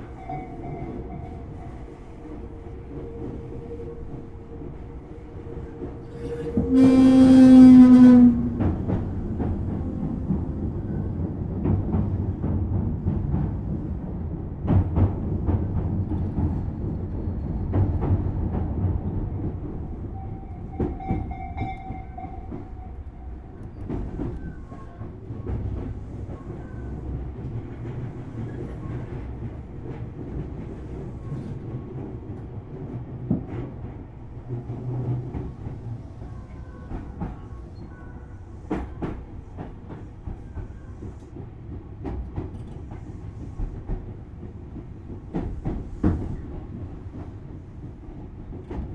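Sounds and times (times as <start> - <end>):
train wheels rumbling on rail: 0.0 - 48.9.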